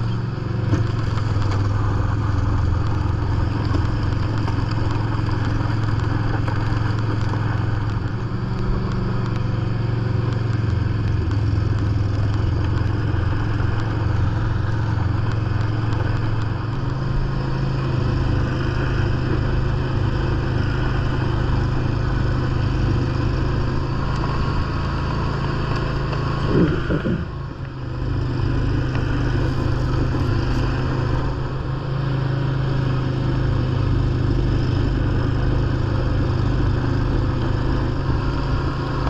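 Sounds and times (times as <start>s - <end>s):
lawn tractor engine under load: 12.1s - 39.0s
snowblower rushing noise: 13.0s - 39.0s.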